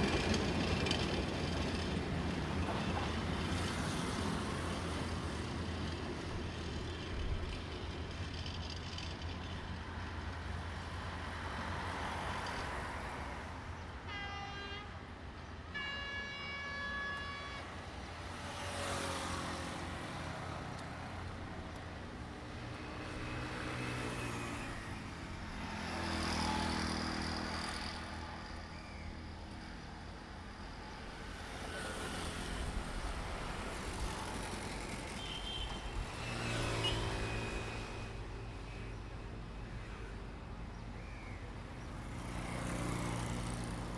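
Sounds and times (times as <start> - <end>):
train engine noise: 0.0 - 14.1, 16.8 - 41.0
train horn blasts: 14.1 - 15.1, 15.7 - 17.8.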